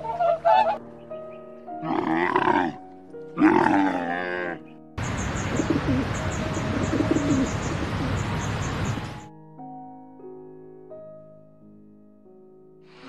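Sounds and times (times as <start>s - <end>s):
soft background music: 0.0s - 13.0s
camel moaning calls: 1.8s - 2.8s, 3.4s - 4.7s
pigeons cooing: 3.4s - 9.2s.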